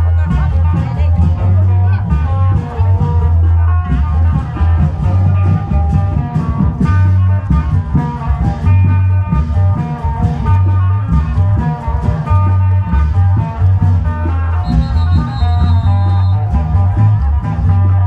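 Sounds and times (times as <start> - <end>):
heavy steady drumbeats: 0.0 - 18.0.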